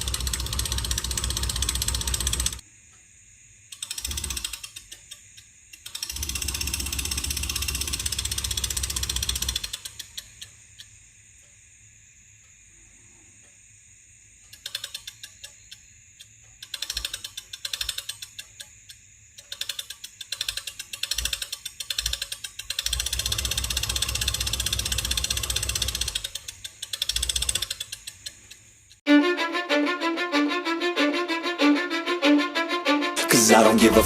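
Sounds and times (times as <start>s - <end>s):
mechanical clicking and rattling: 0.0s - 2.6s, 3.7s - 10.9s, 14.5s - 29.0s
music with violin: 29.1s - 34.0s.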